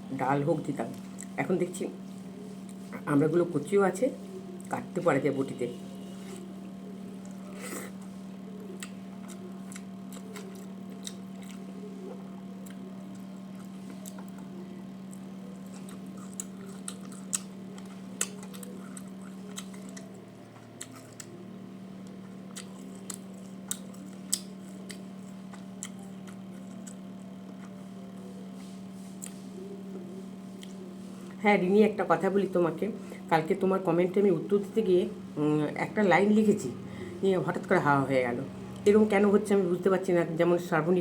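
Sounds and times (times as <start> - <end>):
steady low hum: 0.0 - 41.0
person chewing: 7.1 - 28.3, 29.0 - 29.6, 30.5 - 31.4.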